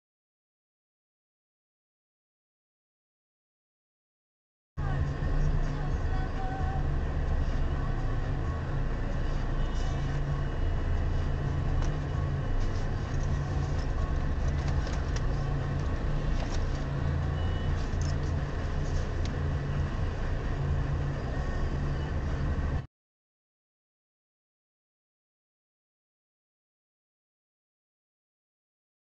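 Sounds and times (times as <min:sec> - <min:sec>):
car engine idling: 0:04.8 - 0:22.8.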